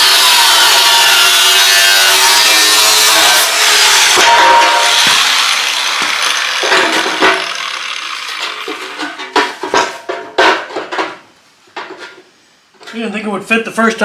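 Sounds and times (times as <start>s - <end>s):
power tool cutting steel: 0.0s - 9.2s
metal clanks and knocks: 4.1s - 11.2s.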